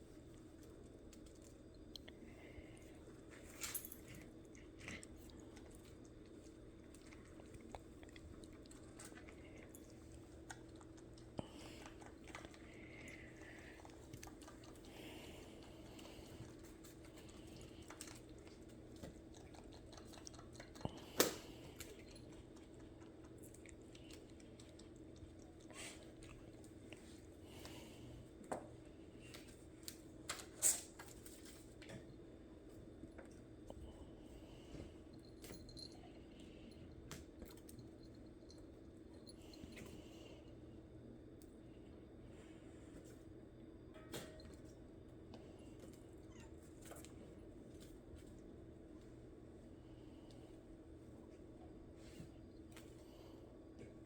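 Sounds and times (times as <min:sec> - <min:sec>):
steady low hum: 0:00.0 - 0:54.0
cats pawing and biting toy: 0:02.6 - 0:28.0.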